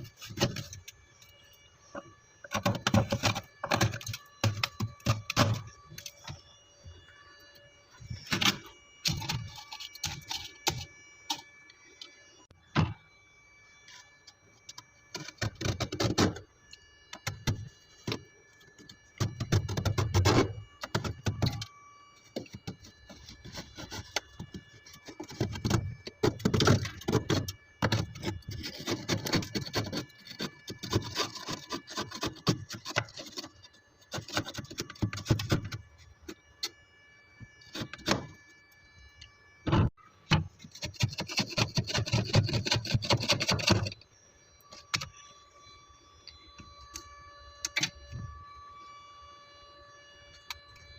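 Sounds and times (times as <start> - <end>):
freezer frost being scraped: 23.1 - 35.7, 40.7 - 44.0.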